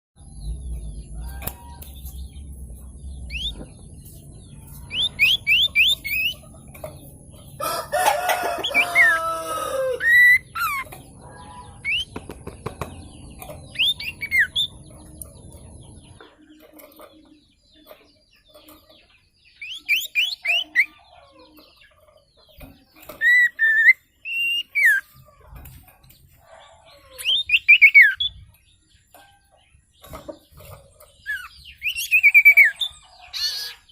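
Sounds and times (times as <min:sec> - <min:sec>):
rooster crowing: 0:07.6 - 0:10.3.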